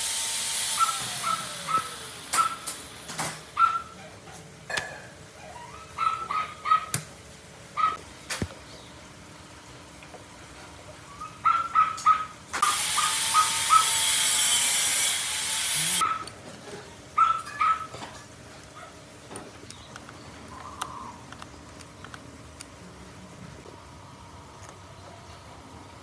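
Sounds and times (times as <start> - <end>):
loud steady hiss: 0.0 - 3.6, 12.6 - 16.0
dog yipping: 0.8 - 2.6, 3.6 - 4.2, 5.4 - 7.0, 7.8 - 8.0, 11.1 - 12.4, 13.0 - 14.0, 16.0 - 16.3, 17.2 - 18.0.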